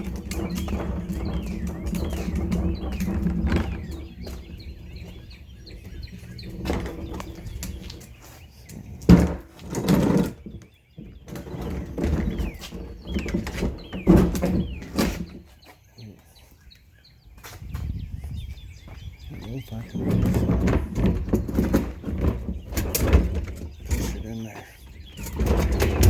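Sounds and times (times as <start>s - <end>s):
low rumbling: 0.0s - 8.2s
birds chirping: 0.0s - 26.0s.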